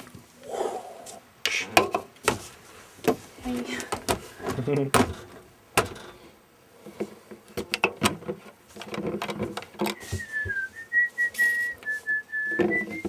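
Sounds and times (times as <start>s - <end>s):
clicks and clatter of items handled: 6.9s - 10.3s
person whistling a tune: 9.9s - 13.0s.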